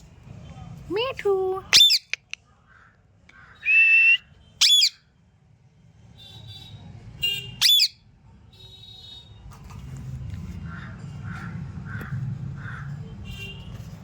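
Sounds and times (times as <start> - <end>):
parrot calls: 1.7 - 2.4, 3.4 - 5.0, 7.6 - 8.0
parrot whistling: 3.6 - 5.0, 7.6 - 8.0.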